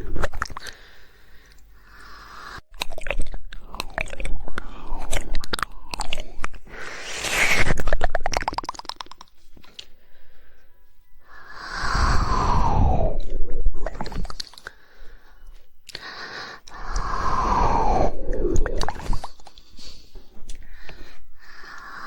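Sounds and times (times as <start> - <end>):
tongue clicks: 0.0 - 0.9, 2.7 - 6.8, 7.7 - 10.0, 11.4 - 14.8, 15.4 - 17.4
wet mouth swells: 2.1 - 9.9, 11.3 - 14.8, 15.9 - 20.8.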